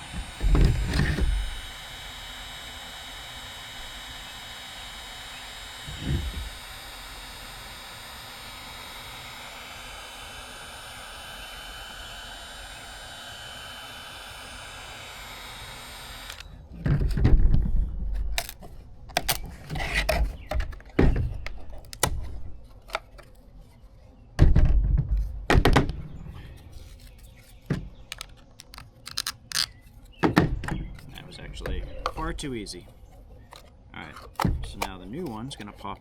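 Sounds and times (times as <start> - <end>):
knocks of plastic being pried apart: 0.0 - 1.9, 15.6 - 23.3, 33.4 - 36.0
heat gun blowing: 0.0 - 16.6.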